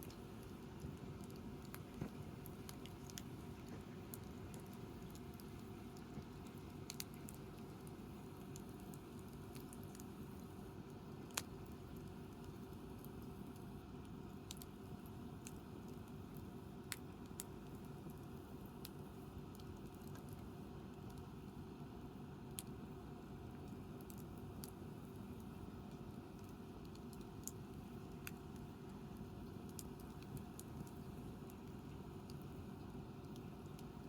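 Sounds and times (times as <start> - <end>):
campfire crackling and popping: 0.0 - 18.0, 23.6 - 34.0
faint low fire rumble: 0.0 - 34.0.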